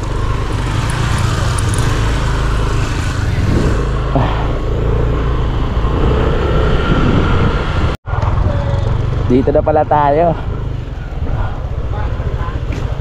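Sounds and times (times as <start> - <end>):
motorcycle engine running: 0.0 - 13.0
wind rushing on microphone: 2.9 - 8.6.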